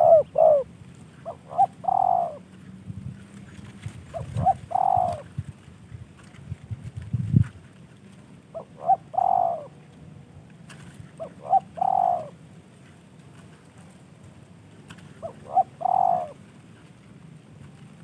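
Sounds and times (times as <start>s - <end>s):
dove cooing: 0.0s - 2.5s, 4.1s - 5.4s, 8.5s - 9.8s, 11.1s - 12.4s, 15.1s - 16.4s.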